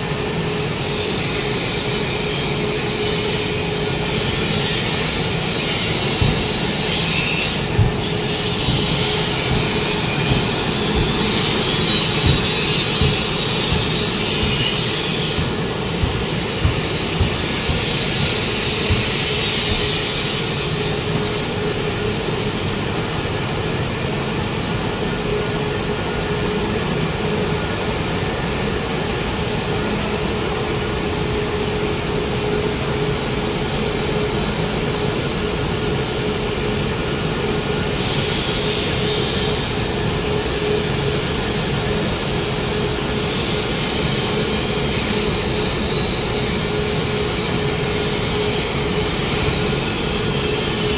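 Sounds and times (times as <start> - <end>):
industrial machinery drone: 0.0 - 50.9
knocks: 8.7 - 20.0.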